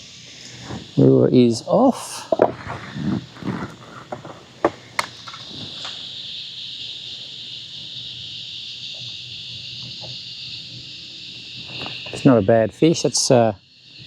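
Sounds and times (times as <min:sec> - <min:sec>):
cicadas chorus: 0:00.0 - 0:14.0
sharp knocks: 0:02.3 - 0:05.5.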